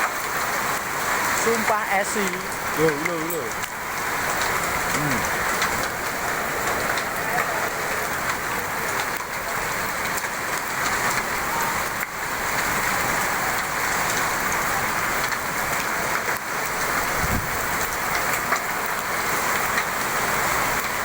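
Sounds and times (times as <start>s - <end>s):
heavy rain and hail falling: 0.0s - 21.0s.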